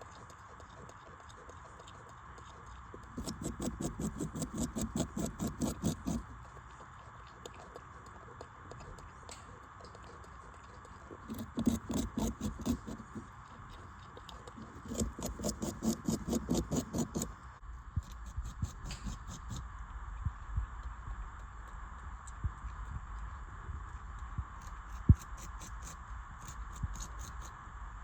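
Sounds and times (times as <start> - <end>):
steady background hum: 0.0 - 28.0
beaver gnawing on a branch: 3.0 - 6.6, 11.2 - 19.6, 24.6 - 27.5.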